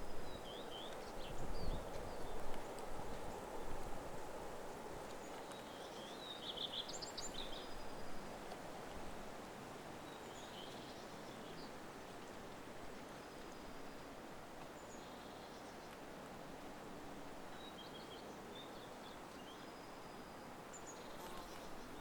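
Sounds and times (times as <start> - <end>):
songbird chirping: 5.1 - 8.1, 17.6 - 22.0.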